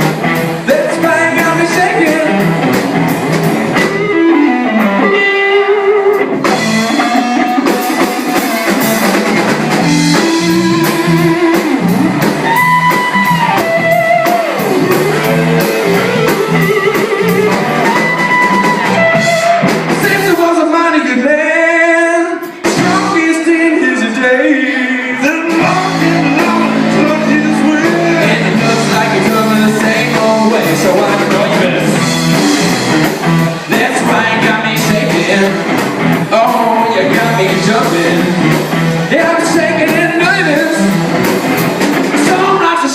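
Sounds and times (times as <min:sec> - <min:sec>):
steady drum beat: 0:00.0 - 0:05.0, 0:06.2 - 0:20.6, 0:22.4 - 0:23.5, 0:25.3 - 0:42.9
lead guitar solo: 0:01.9 - 0:20.0.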